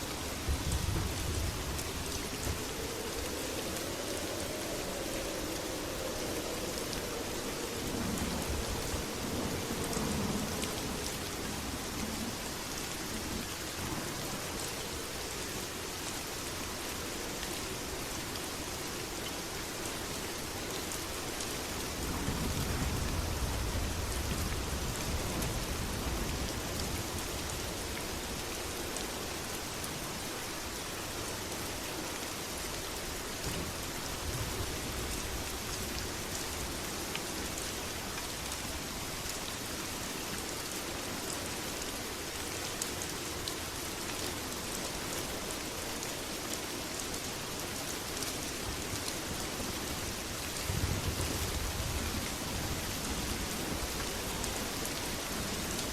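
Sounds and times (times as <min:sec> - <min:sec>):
rain pattering: 0:00.0 - 0:55.9
thunder rumbling: 0:00.2 - 0:12.6.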